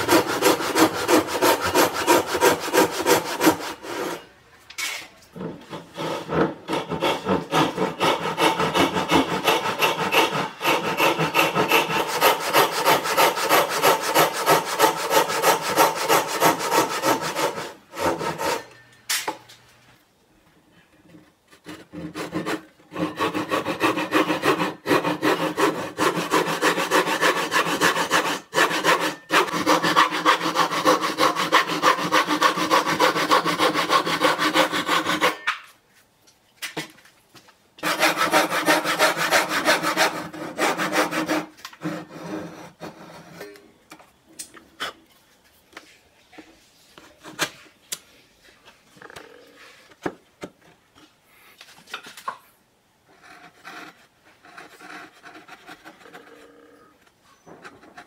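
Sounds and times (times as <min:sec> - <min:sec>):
hand saw cutting wood: 0:00.0 - 0:04.3, 0:05.4 - 0:18.8, 0:21.6 - 0:35.7, 0:37.8 - 0:43.5.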